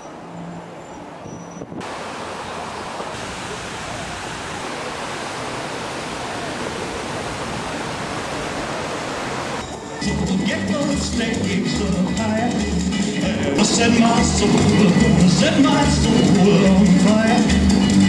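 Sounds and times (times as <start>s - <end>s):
water rushing: 1.8s - 10.0s.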